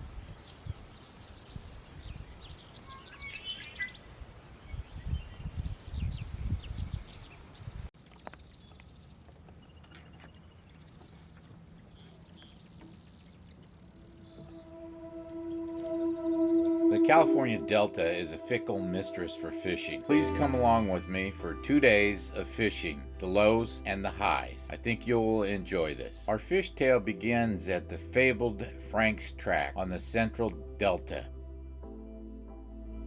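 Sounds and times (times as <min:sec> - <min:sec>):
small birds chirping: 0:00.3 - 0:14.6
wind gusting on microphone: 0:04.2 - 0:07.9.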